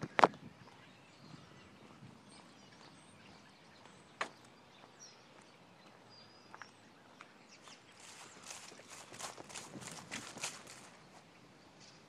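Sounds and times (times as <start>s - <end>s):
faint bird chirps: 0.0s - 9.4s
soft footsteps: 0.0s - 11.3s.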